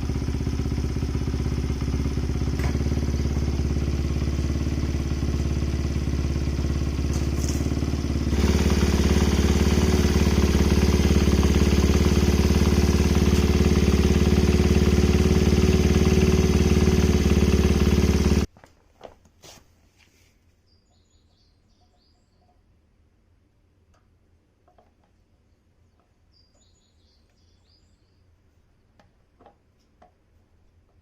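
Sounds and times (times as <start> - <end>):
motorcycle engine running: 0.0 - 18.5
faint bird chirps: 20.6 - 22.8, 25.3 - 28.4.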